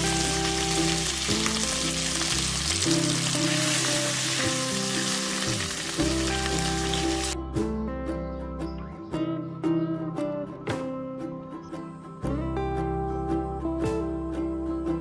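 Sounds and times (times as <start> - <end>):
livers sizzling in a pan: 0.0 - 7.4
background music: 0.0 - 15.0.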